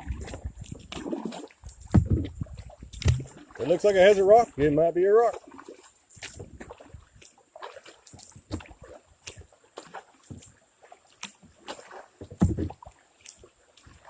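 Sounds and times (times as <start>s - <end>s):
paddle strokes and splashes: 0.0s - 14.0s
knocks against kayak hull: 1.8s - 3.3s, 12.2s - 12.8s
heavy thump: 1.9s - 2.4s, 12.3s - 12.8s.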